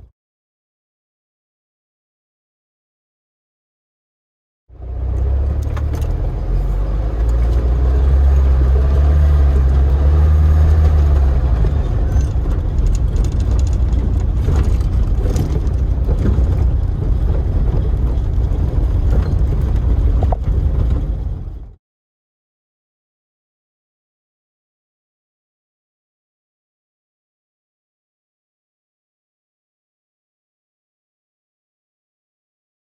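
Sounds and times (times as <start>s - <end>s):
car engine rumbling: 4.7s - 21.8s
knocks and rattles: 7.1s - 21.8s.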